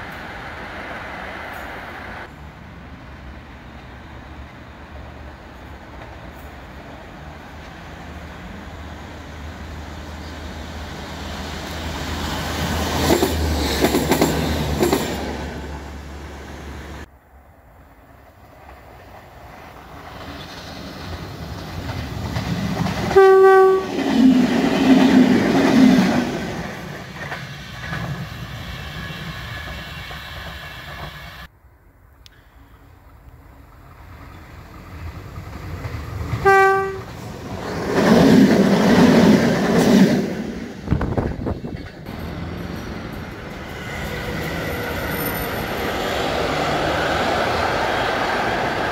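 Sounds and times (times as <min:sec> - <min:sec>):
locomotive rumbling past: 0:00.0 - 0:31.5, 0:32.6 - 0:48.9
train wheels clicking over rails: 0:10.6 - 0:15.9, 0:18.5 - 0:23.2, 0:23.9 - 0:31.5, 0:37.1 - 0:48.9
locomotive horn blast: 0:23.1 - 0:24.1, 0:36.4 - 0:37.2.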